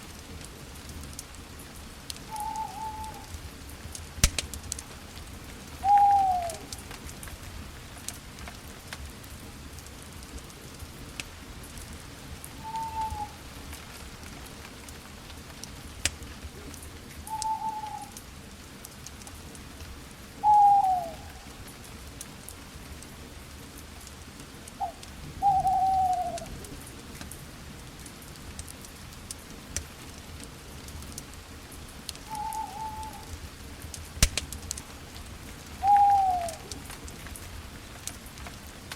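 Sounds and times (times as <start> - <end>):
campfire crackling: 0.0 - 38.9
owl hooting: 2.3 - 3.3, 5.8 - 6.7, 12.6 - 13.4, 17.3 - 18.1, 20.4 - 21.4, 24.8 - 26.5, 32.3 - 33.3, 35.8 - 36.8.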